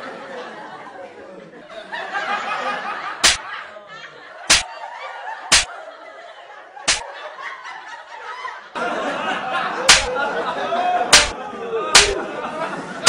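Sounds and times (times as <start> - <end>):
people laughing: 0.0 - 13.0
hand slaps: 3.2 - 3.4, 9.9 - 10.1, 11.1 - 11.4, 12.0 - 12.2.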